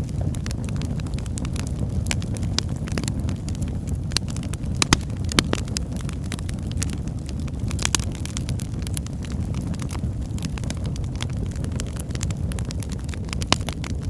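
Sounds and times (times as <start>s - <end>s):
steady low rumble: 0.0s - 14.0s
wood fire crackling and popping: 0.0s - 14.0s.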